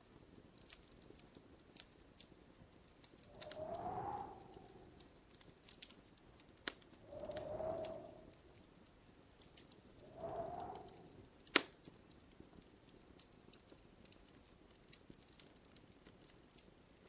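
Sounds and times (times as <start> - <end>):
wood fire crackling: 0.0 - 17.0
short rushing swells: 3.3 - 5.0, 7.1 - 8.4.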